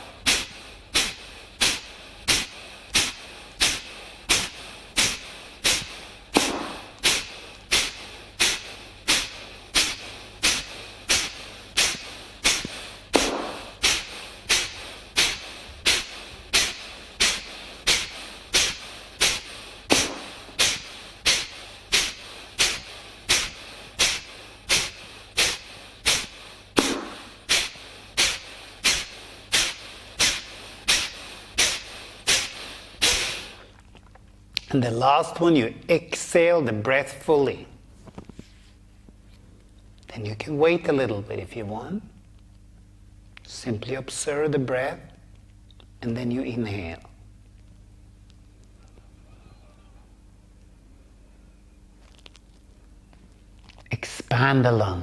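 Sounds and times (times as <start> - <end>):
forceful nasal exhalations: 0.0 - 33.8.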